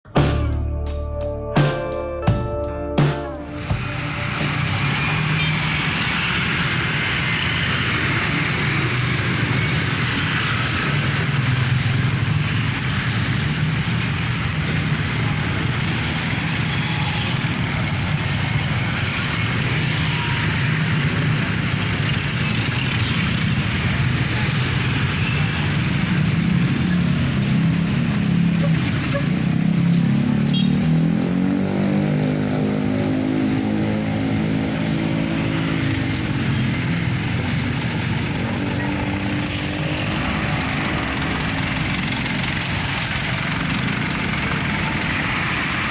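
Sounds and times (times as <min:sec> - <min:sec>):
road traffic passing: 0:03.1 - 0:45.9
engine accelerating: 0:03.3 - 0:45.9.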